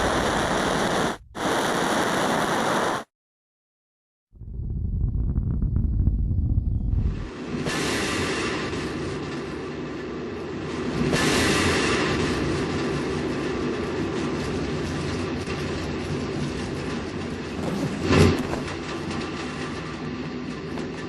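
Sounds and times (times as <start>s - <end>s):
rocket engine roar: 0.0s - 3.1s, 4.4s - 13.0s.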